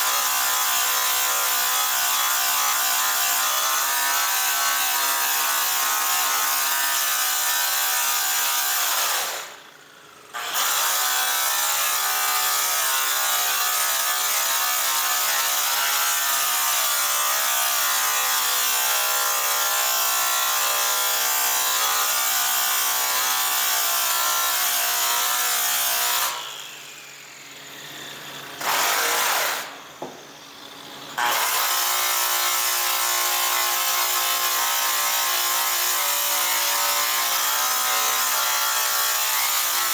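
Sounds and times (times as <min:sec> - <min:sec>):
power tool motor whine: 0:24.9 - 0:33.4.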